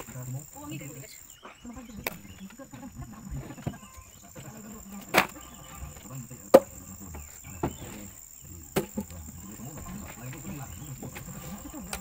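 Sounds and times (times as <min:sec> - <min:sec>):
high insect trill: 0:00.0 - 0:12.0
firewood wooden knocks: 0:08.7 - 0:12.0.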